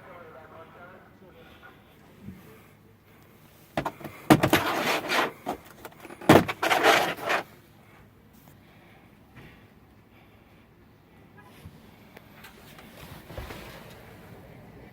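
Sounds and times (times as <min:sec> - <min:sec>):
rough clattering bursts: 0:03.8 - 0:07.5.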